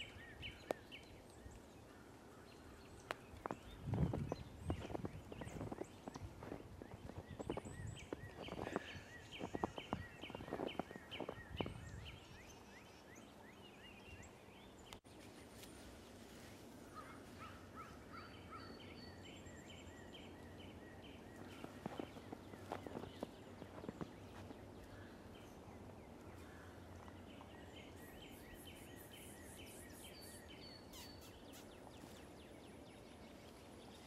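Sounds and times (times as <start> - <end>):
songbird chirping: 0.0 - 34.0
footsteps crunching in snow: 3.0 - 12.5, 21.4 - 25.5.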